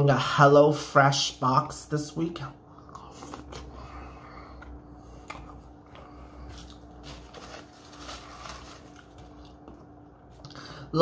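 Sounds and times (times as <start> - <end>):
quiet chewing: 2.7 - 7.2, 8.3 - 10.6
paper packaging rustling: 6.4 - 9.8.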